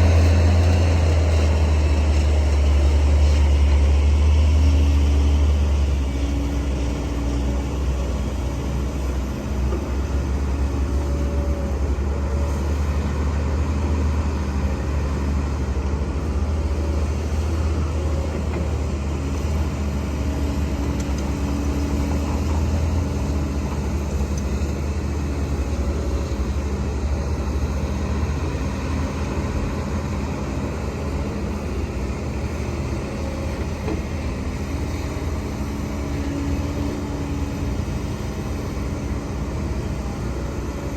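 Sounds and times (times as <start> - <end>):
heavy diesel machinery droning: 0.0 - 40.9.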